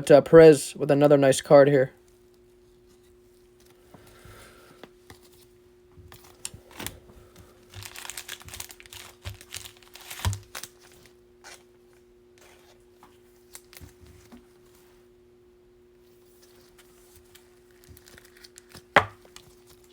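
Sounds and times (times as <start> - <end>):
faint steady hum: 0.0 - 19.9
foil wrapper crinkling and tearing: 6.2 - 11.7, 13.4 - 14.0, 16.4 - 19.9.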